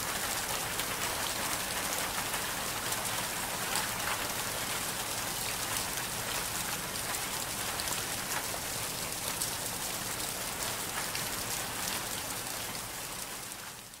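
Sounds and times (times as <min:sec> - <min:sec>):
rain drops ticking: 0:00.0 - 0:14.0
steady rainfall: 0:00.0 - 0:14.0.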